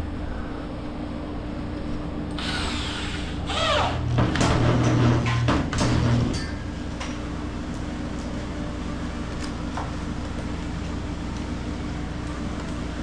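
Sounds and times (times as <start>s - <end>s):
refrigeration unit humming: 0.0s - 13.0s
power drill: 2.4s - 6.2s.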